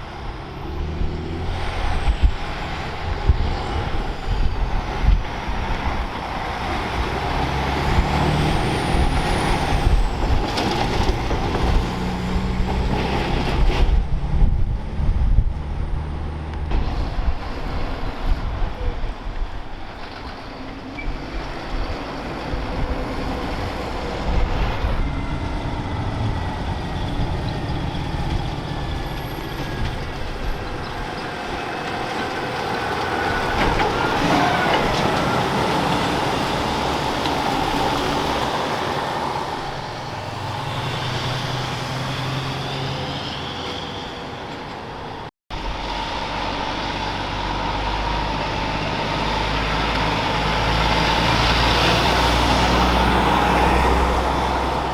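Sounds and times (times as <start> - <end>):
diesel trucks driving by: 0.0 - 54.9
traffic rumble: 0.0 - 54.9.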